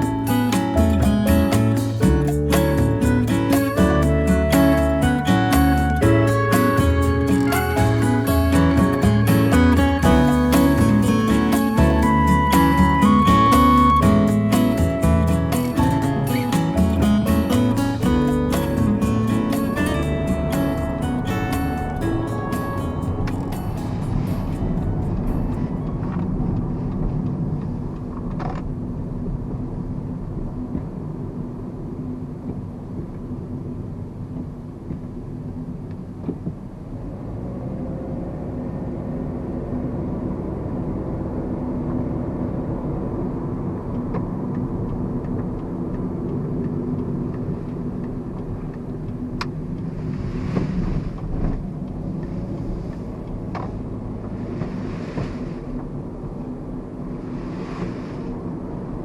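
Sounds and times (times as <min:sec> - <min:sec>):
car engine humming: 0:00.0 - 0:27.1.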